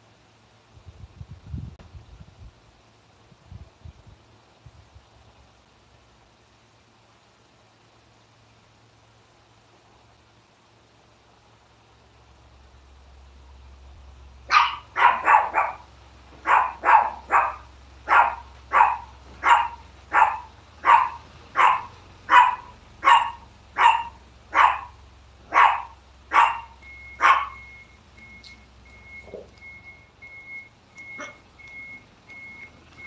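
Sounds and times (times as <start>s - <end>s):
dog barking: 14.5s - 27.7s, 31.2s - 31.4s.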